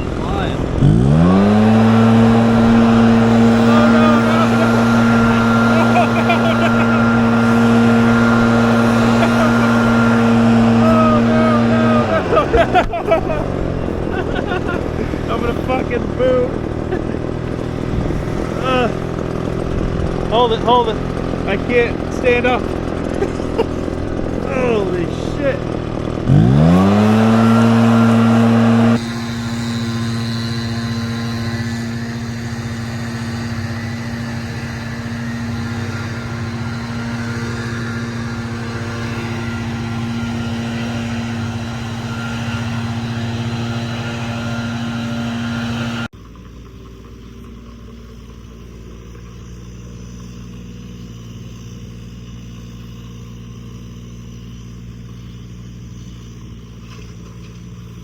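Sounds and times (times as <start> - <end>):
heavy machine engine high revs: 0.0 - 46.2
low engine drone: 0.0 - 58.0.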